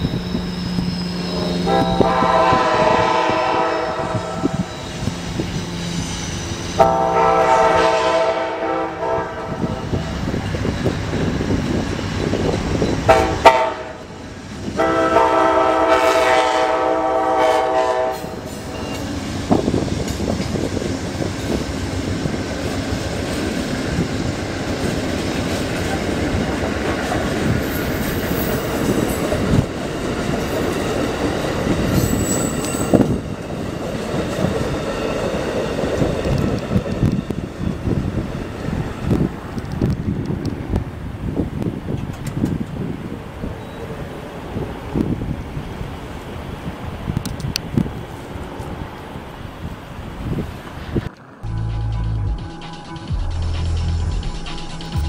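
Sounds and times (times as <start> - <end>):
train wheels rumbling and clattering: 0.0 - 55.0
train horn blasts: 1.3 - 4.8, 6.8 - 10.0, 13.1 - 14.2, 14.8 - 19.0.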